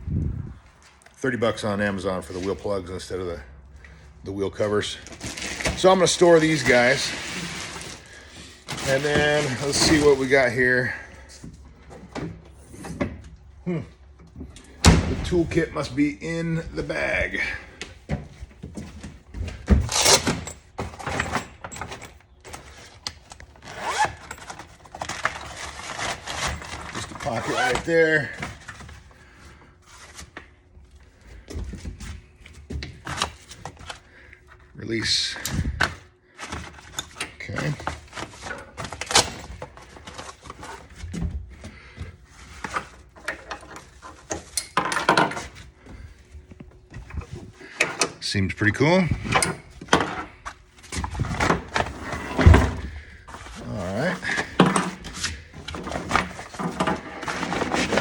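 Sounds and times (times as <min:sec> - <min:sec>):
fabric rustling and scraping: 0:05.2 - 0:10.3.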